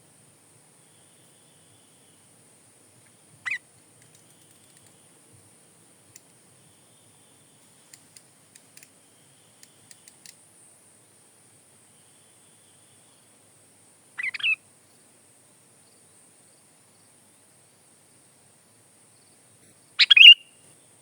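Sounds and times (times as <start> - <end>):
faint sharp ticks: 4.0 - 5.0, 6.1 - 6.4, 7.6 - 9.0, 9.6 - 10.4
bulbul call: 20.0 - 20.5.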